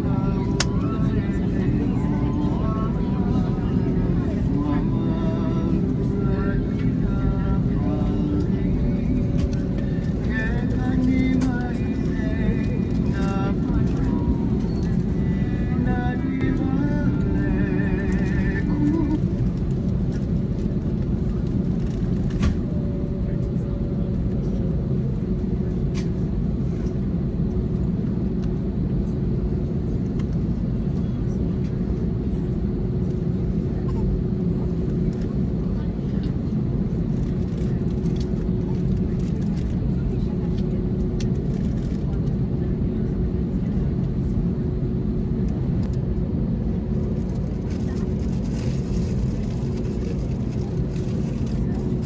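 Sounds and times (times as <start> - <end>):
faint steady hum: 0.0 - 42.6
airliner cabin rumble: 0.0 - 52.0.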